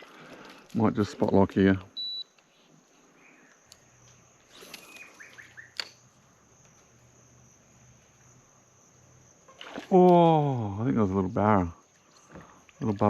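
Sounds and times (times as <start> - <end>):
insect drone: 0.0 - 13.0
bird chirps: 4.5 - 6.0.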